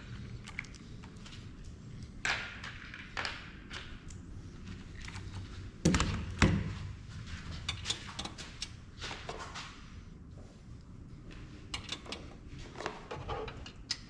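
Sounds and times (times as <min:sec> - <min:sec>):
tools and metal parts clicking: 0:11.7 - 0:12.4.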